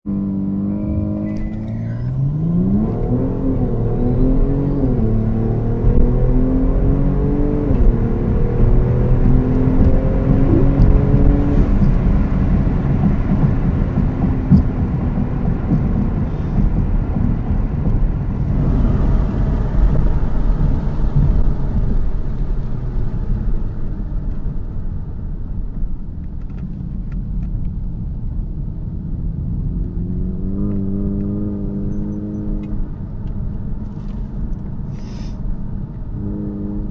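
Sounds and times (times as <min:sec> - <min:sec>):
engine revving: 0:00.1 - 0:23.5, 0:29.5 - 0:32.8, 0:36.1 - 0:36.9
cars accelerating hard: 0:00.1 - 0:23.8, 0:29.5 - 0:32.9, 0:36.0 - 0:36.9.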